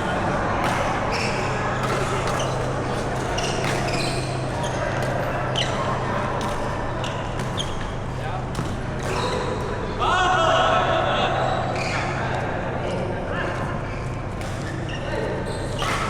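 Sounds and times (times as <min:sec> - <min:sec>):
racket hitting shuttlecock: 0:00.6 - 0:04.3, 0:08.5 - 0:09.4, 0:15.8 - 0:16.0
shoes squeaking on court: 0:00.6 - 0:08.2.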